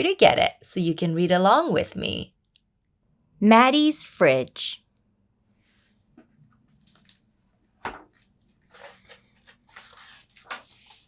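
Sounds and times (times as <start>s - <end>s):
pages turning: 6.7s - 11.0s.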